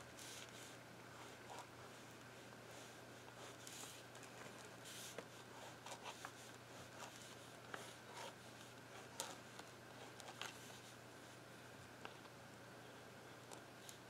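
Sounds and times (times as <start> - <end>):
drawing tool scratching paper: 4.8 - 9.4.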